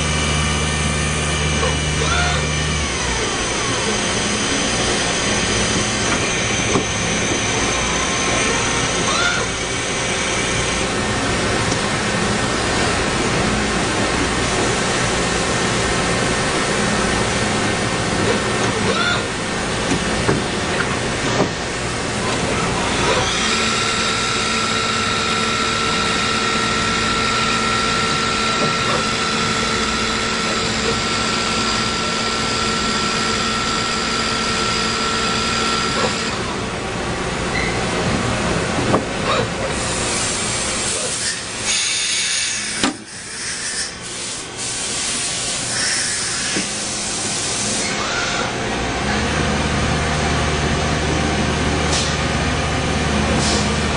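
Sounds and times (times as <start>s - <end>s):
lathe machine whine: 0.0s - 38.9s, 39.5s - 53.9s
hiss: 39.8s - 47.8s.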